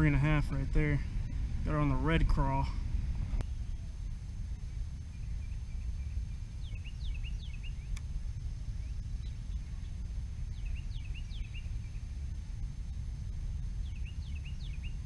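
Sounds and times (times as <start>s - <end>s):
steady low rumble: 0.0s - 15.0s
small bird chirping: 4.6s - 15.0s.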